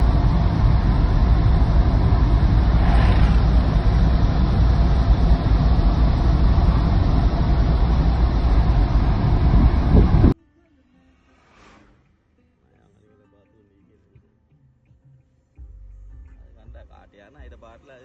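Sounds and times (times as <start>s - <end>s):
vehicle engine and road rumble: 0.0s - 10.4s.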